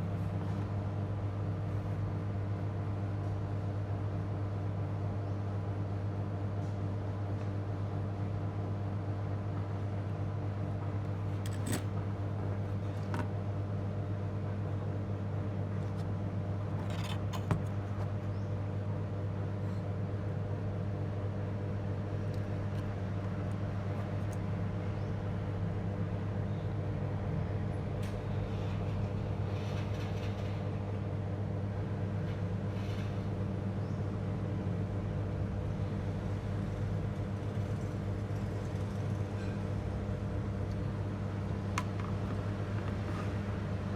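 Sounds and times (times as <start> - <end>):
low electrical hum: 0.0 - 43.9.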